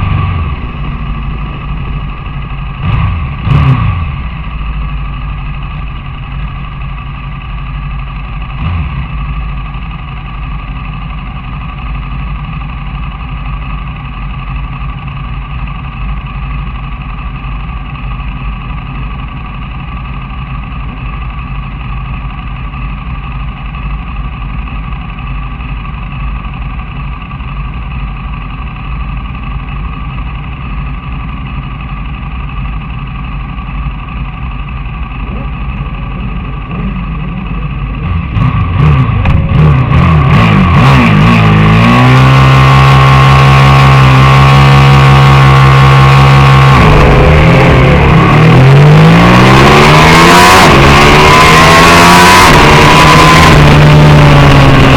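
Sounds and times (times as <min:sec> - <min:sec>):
engine running steadily: 0:00.0 - 0:54.9
brief thump: 0:39.2 - 0:39.6.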